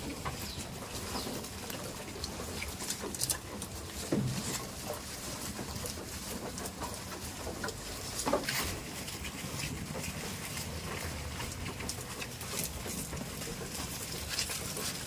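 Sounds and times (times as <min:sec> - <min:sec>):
small clicks and rustling: 0:00.0 - 0:15.0.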